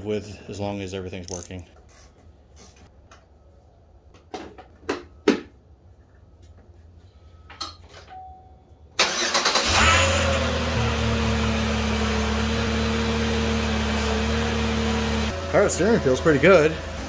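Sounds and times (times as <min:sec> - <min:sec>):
car engine starting and idling: 0:09.0 - 0:17.0.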